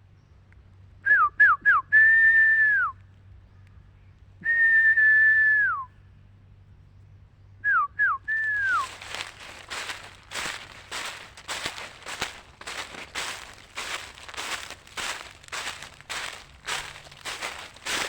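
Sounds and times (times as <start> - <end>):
person whistling: 7.7 - 8.8.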